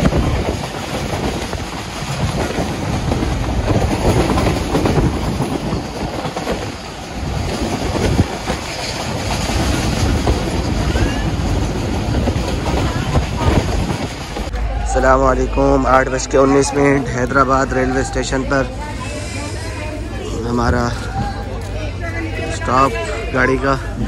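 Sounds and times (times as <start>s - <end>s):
train wheels clattering over rails: 0.0s - 14.5s.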